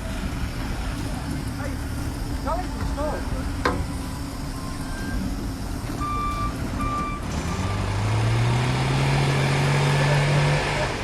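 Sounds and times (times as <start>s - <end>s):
reversing alarm beeps: 4.4s - 5.4s, 6.0s - 7.9s
heavy engine revving up: 4.8s - 11.0s.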